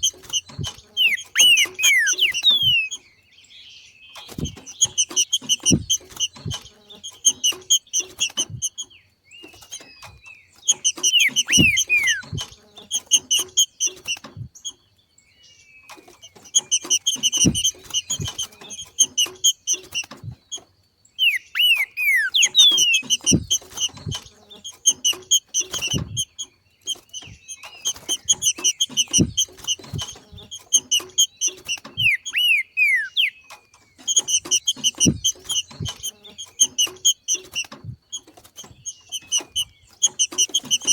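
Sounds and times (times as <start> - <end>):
bird chattering notes: 0.0 - 3.0, 4.2 - 14.5, 16.2 - 20.4, 21.2 - 40.9
bird whistled slurs: 0.0 - 3.0, 10.7 - 12.5, 21.2 - 23.6, 32.0 - 33.4
low thumps: 4.3 - 6.8, 17.2 - 18.6, 22.7 - 24.3.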